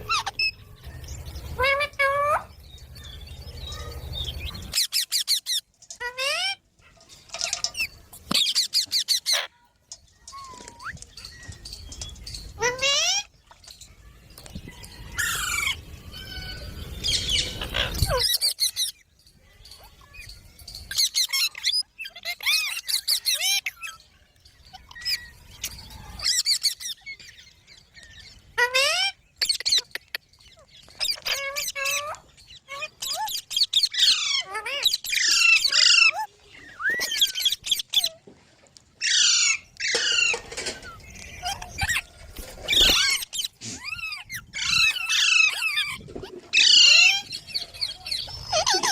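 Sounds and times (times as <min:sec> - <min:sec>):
parrots squawking: 0:00.0 - 0:00.8, 0:01.5 - 0:02.5, 0:03.7 - 0:09.6, 0:12.3 - 0:13.8, 0:15.2 - 0:18.9, 0:20.9 - 0:24.0, 0:28.6 - 0:38.2, 0:39.0 - 0:48.9.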